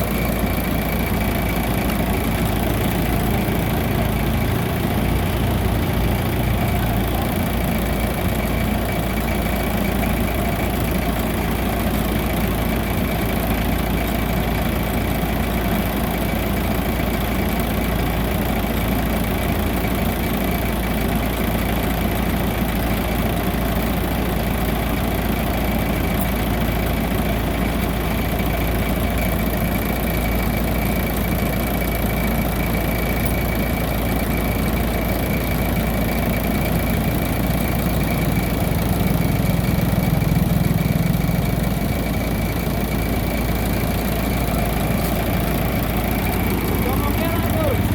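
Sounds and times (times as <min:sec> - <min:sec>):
combine harvester droning: 0:00.0 - 0:47.9.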